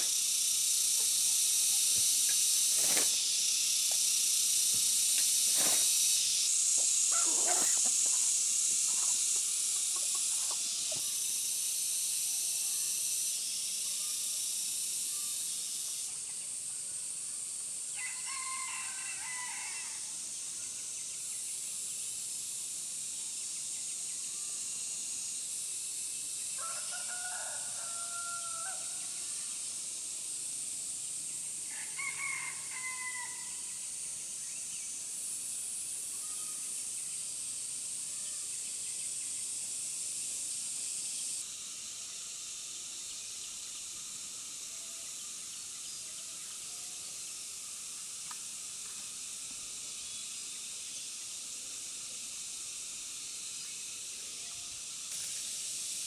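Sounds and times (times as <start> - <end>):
steady high-pitched hiss: 0.0 - 56.0
rooster crowing: 7.1 - 7.9, 18.0 - 20.1, 26.6 - 29.0, 31.7 - 33.6.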